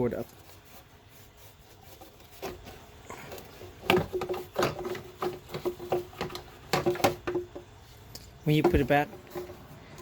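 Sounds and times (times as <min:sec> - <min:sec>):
car parts clicking and knocking: 0:02.4 - 0:10.0.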